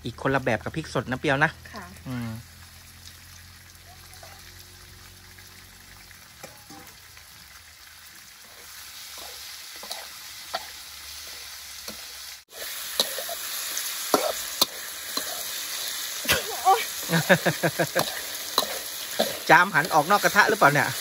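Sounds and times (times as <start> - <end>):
food sizzling in a wok: 0.0 - 21.0
metal spatula scraping a pan: 8.4 - 21.0.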